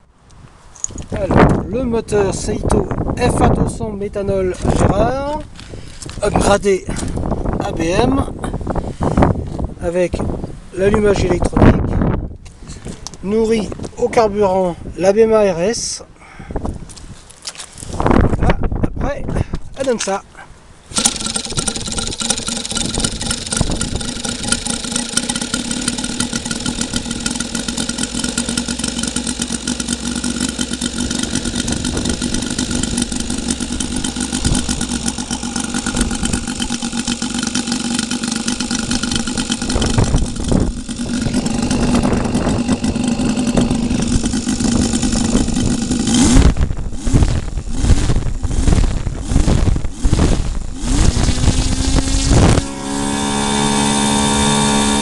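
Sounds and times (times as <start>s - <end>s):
model aircraft engine running: 20.9s - 55.0s.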